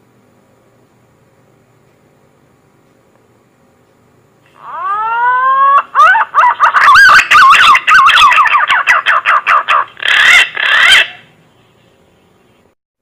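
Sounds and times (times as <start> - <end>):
pigeon call whistles: 4.6 - 11.2.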